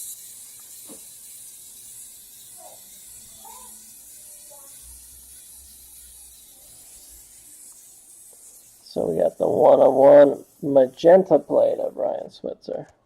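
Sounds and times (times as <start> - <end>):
steady background hiss: 6.1 - 12.9.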